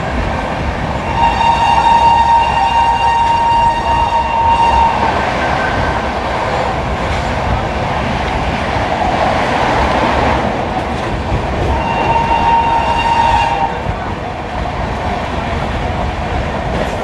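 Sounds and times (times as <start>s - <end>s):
train wheels rumbling on rails: 0.0s - 17.0s
locomotive horn: 1.0s - 5.2s, 11.7s - 13.9s.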